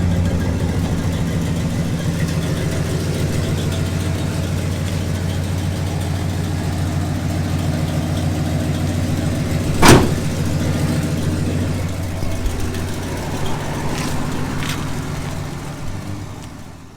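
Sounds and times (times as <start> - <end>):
car engine idling: 0.0 - 16.9
loud thump: 9.7 - 10.6.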